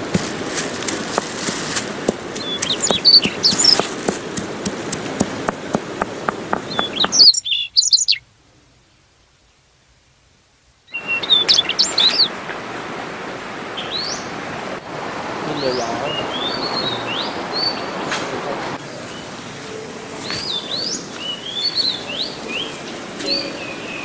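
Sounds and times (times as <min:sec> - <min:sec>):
small birds chirping: 0:00.0 - 0:09.1, 0:10.8 - 0:12.4, 0:15.5 - 0:24.0
sharp clicks: 0:00.8 - 0:07.3.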